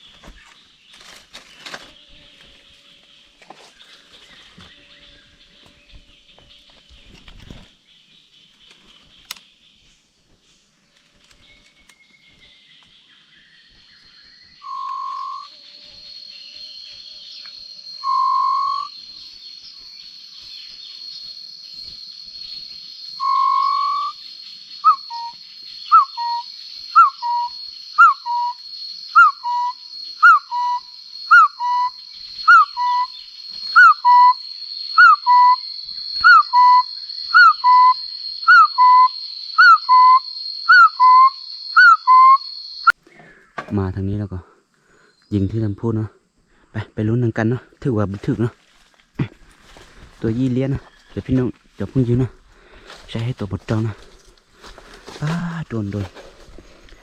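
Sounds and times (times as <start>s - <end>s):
whistled partridge calls: 23.2s - 43.5s.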